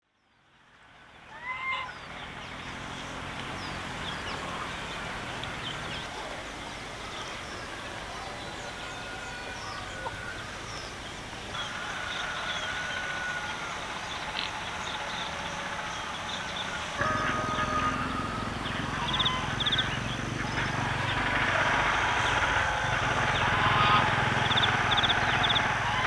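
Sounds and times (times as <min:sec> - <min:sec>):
small birds chirping: 0:01.8 - 0:26.0
chickens clucking: 0:16.9 - 0:26.0.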